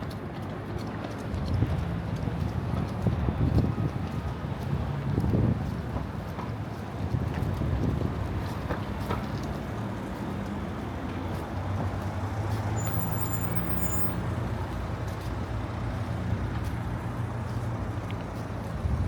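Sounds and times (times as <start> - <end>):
wind noise: 1.3 - 8.7, 18.6 - 19.0.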